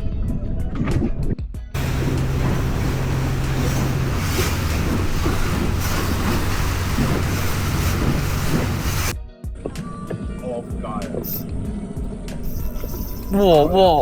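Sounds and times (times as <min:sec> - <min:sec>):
boat engine humming: 0:01.8 - 0:09.1
water washing along hull: 0:01.8 - 0:09.1
wind rush on microphone: 0:01.8 - 0:09.1.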